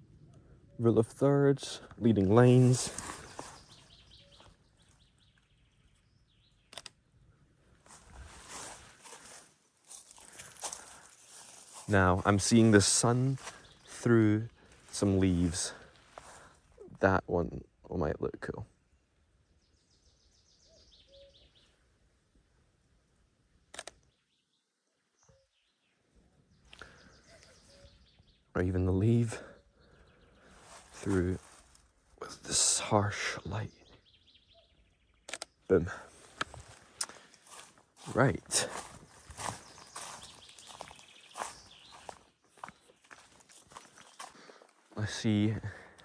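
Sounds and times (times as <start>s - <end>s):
songbird singing: 0.0s - 46.0s
soft rustling: 2.5s - 5.0s, 7.8s - 11.9s, 30.6s - 32.0s
faint bird chirps: 2.8s - 6.9s, 18.8s - 22.0s, 24.0s - 31.8s, 33.2s - 45.8s
sharp click: 6.7s - 7.0s, 23.7s - 24.0s, 35.3s - 35.6s.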